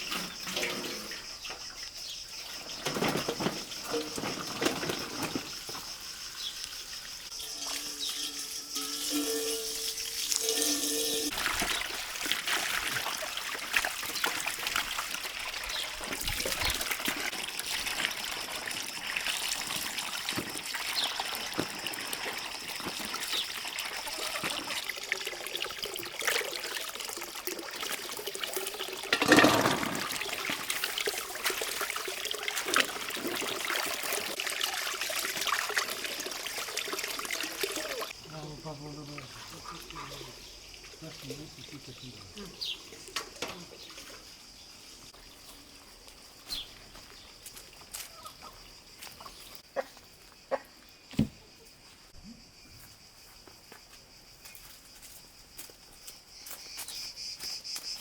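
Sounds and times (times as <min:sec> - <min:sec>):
water running and splashing: 0:00.0 - 0:45.5.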